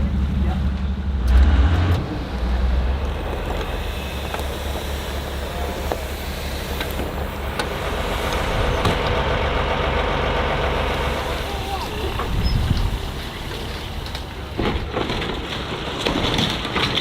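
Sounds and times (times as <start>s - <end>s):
boat engines rumbling: 0.0s - 17.0s
water and wind noise: 11.6s - 14.8s.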